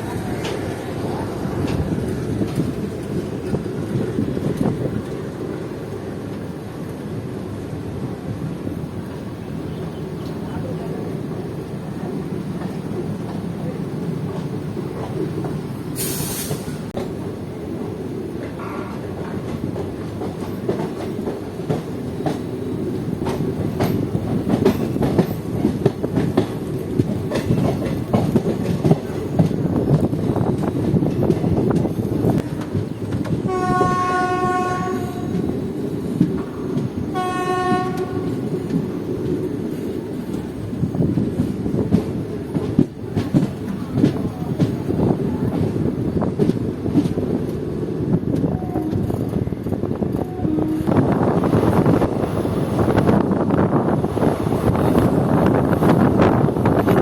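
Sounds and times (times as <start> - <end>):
train wheels rumbling on rail: 0.0 - 57.0
wheels clicking over rail joints: 18.4 - 34.0, 41.2 - 50.4.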